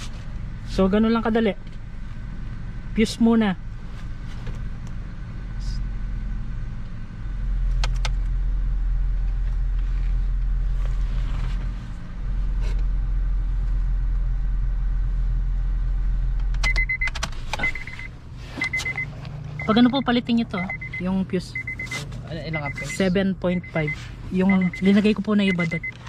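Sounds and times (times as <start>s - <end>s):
car engine idling: 0.0s - 26.0s
high electronic beeps: 16.7s - 26.0s.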